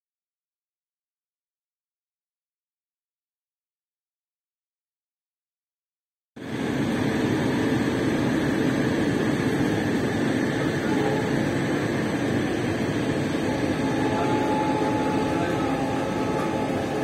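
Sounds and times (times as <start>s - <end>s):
train wheels on rails: 6.4s - 17.0s.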